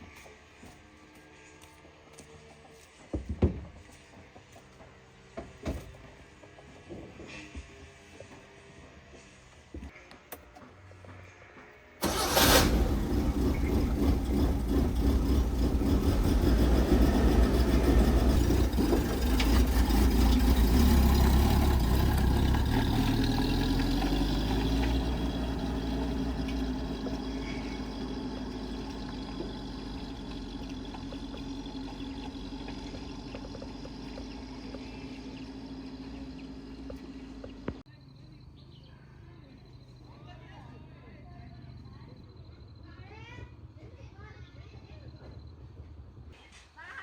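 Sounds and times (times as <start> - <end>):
truck engine starting and running: 12.0 - 38.7.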